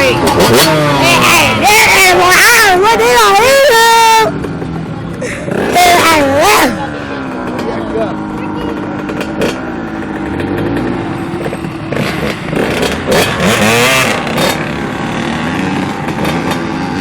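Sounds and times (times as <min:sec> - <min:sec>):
dirt bike engine revving: 0:00.0 - 0:17.0
dirt bike engines running: 0:00.0 - 0:17.0.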